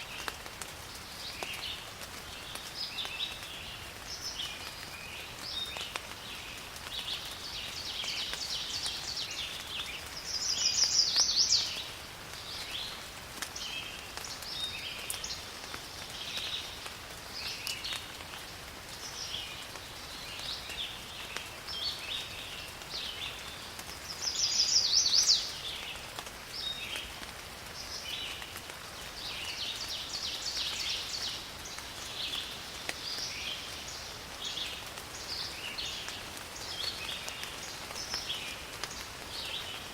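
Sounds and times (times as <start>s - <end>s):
rain falling in forest: 0.0s - 39.9s
birds calling: 7.2s - 13.0s, 23.3s - 26.0s.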